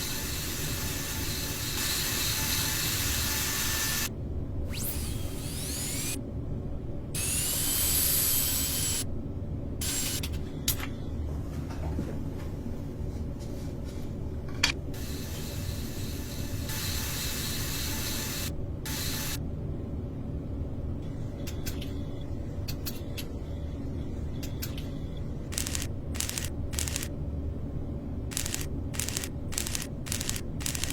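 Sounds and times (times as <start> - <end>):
power tool whining: 4.7 - 6.2, 28.3 - 30.9
sharp clicks: 25.5 - 27.1, 28.3 - 30.9.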